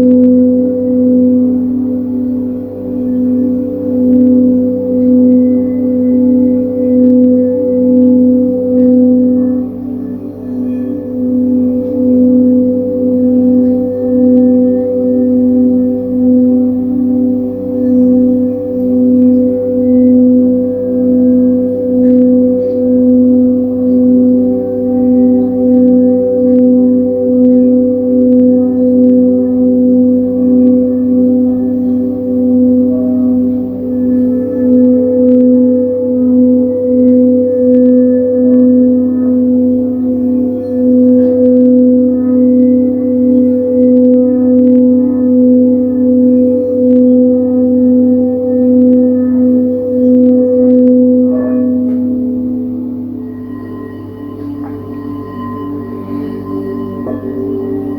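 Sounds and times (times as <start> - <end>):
crystal singing bowls droning: 0.0 - 57.9.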